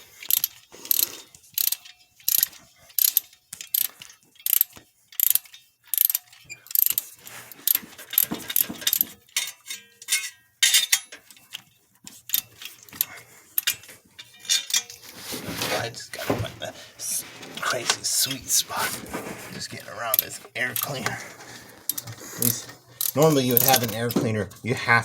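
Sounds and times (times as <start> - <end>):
hand ratchet clicking: 0.0 - 15.0, 19.8 - 24.3.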